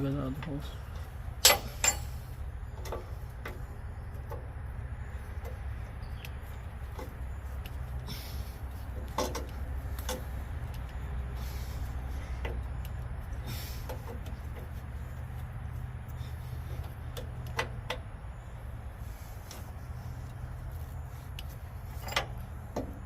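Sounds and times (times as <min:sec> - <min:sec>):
steady low rumble: 0:00.0 - 0:23.0
light clicks and knocks: 0:08.9 - 0:11.0.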